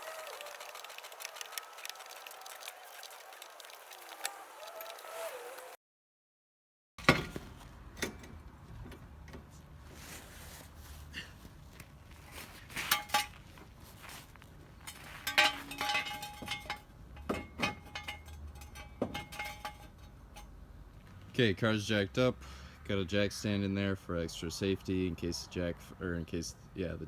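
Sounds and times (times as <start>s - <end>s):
metallic clinks of car jack: 14.9s - 20.5s.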